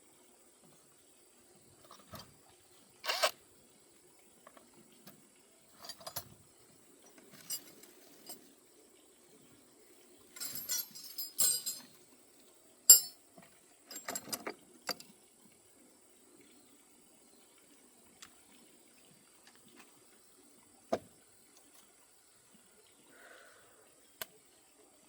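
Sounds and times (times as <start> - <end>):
metal tools clinking and scraping: 5.8 - 6.3, 7.4 - 8.5, 10.4 - 12.0, 12.9 - 13.2, 13.9 - 14.5.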